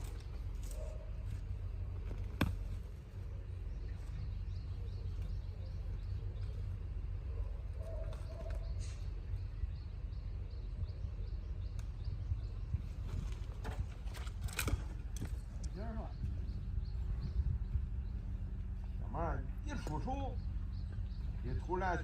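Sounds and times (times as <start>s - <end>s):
faint birds chirping: 0.0s - 22.0s
low steady rumble: 0.0s - 22.0s.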